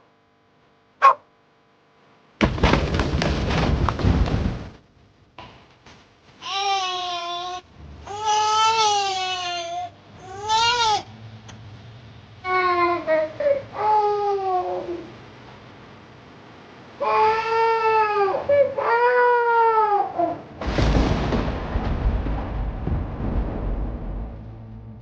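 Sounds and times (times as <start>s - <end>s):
baby crying: 6.4s - 11.1s, 12.5s - 15.1s, 17.0s - 20.5s.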